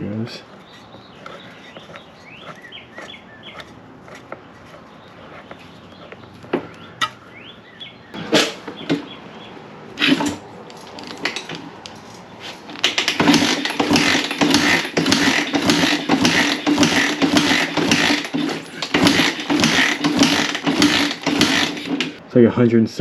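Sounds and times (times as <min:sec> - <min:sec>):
engine cranking compression pulses: 0:12.7 - 0:22.2.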